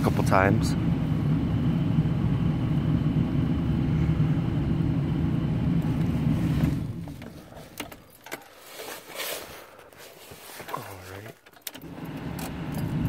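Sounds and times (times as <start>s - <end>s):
steady low rumble: 0.0s - 7.8s
ignition key jingling: 7.0s - 8.6s, 10.7s - 13.0s.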